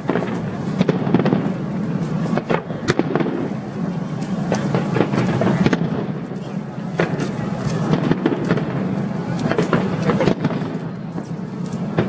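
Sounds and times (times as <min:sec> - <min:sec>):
continuous rumbling din: 0:00.0 - 0:12.0
fireworks bangs and cracks: 0:00.0 - 0:12.0.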